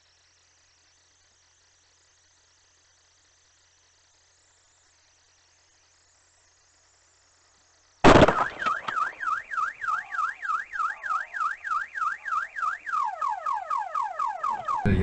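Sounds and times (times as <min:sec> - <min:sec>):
car alarm warbling: 0:08.4 - 0:15.0.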